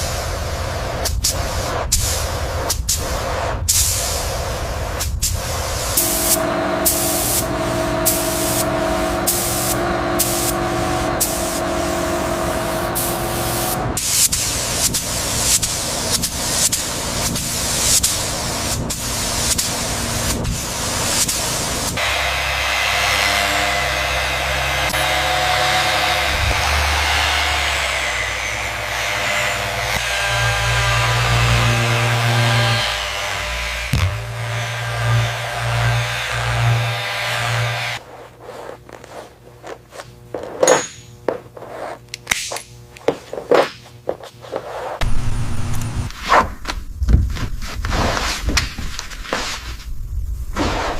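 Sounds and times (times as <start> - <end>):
compressed air hissing: 0.0 - 22.0
power tool whirring: 6.0 - 15.4, 21.9 - 38.0
steady motor: 6.0 - 38.1.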